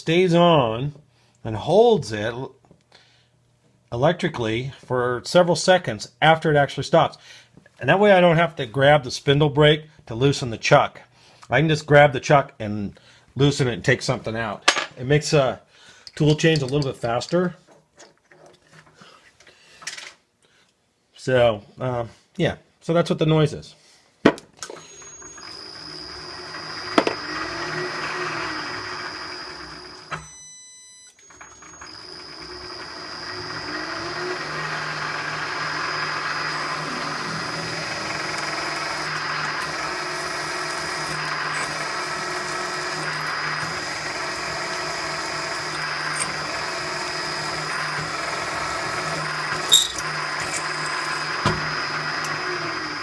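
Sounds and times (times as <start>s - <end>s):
milling machine whirring: 24.7s - 30.2s, 31.2s - 53.0s.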